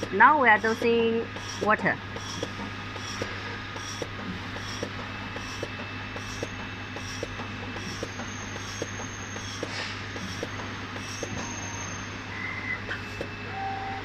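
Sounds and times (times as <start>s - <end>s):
regular mechanical ticking: 0.0s - 11.5s
air hissing: 0.0s - 12.2s
machine humming: 0.0s - 14.0s.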